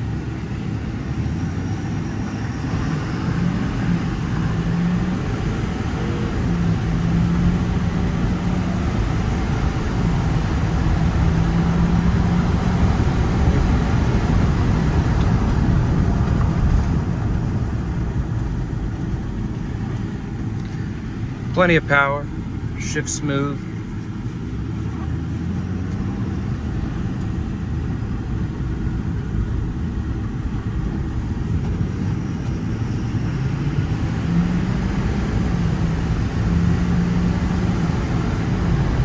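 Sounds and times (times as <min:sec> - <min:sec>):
diesel truck engine droning: 0:00.0 - 0:39.0
road noise: 0:00.0 - 0:39.0.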